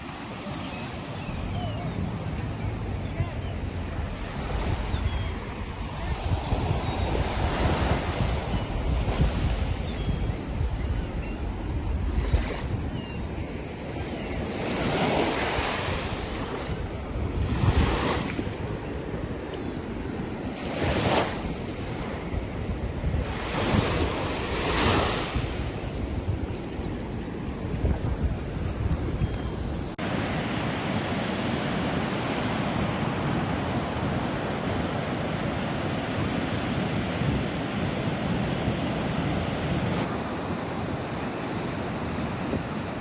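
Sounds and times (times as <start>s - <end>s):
faint high bird calls: 0.5s - 3.7s, 6.4s - 7.3s
wind buffeting microphone: 1.1s - 14.5s, 15.2s - 43.0s.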